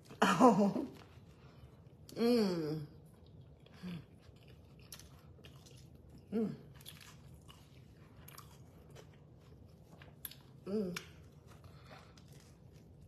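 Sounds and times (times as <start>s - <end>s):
person chewing: 3.0s - 13.0s.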